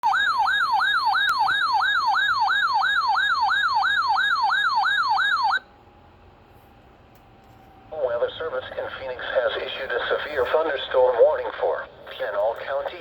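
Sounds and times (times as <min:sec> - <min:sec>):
warbling emergency alert tone: 0:00.0 - 0:05.6.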